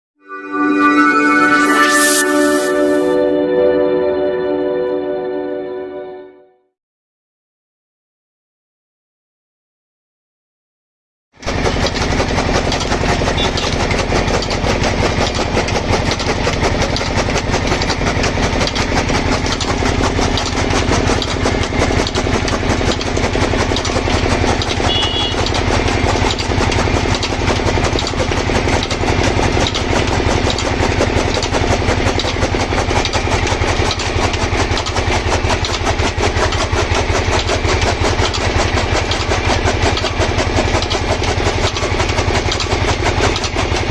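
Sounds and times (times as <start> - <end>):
engine pumpset chugging: 11.4 - 43.9.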